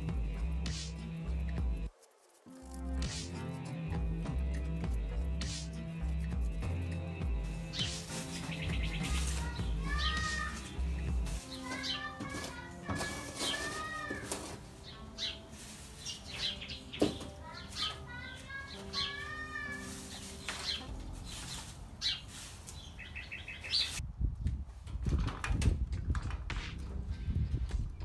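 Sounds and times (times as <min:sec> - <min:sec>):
birds whistling and chirping: 0:07.4 - 0:14.2, 0:14.8 - 0:19.3, 0:20.1 - 0:24.0
soil being shovelled: 0:07.4 - 0:24.0.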